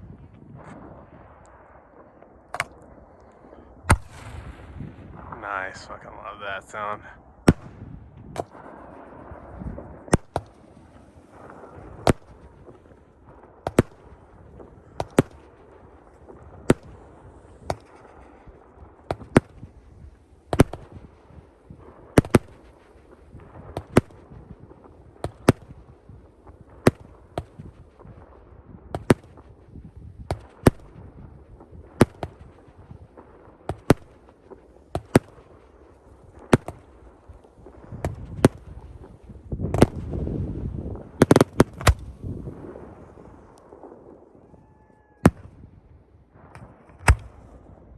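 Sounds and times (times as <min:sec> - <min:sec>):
low rumble: 0:00.0 - 0:13.4
fireworks bangs: 0:00.0 - 0:47.9.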